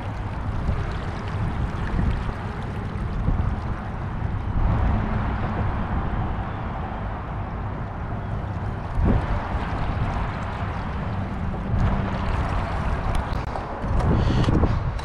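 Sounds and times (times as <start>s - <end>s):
water lapping against boat: 0.0s - 5.3s, 8.3s - 14.9s
wind rumbling on microphone: 0.0s - 15.0s.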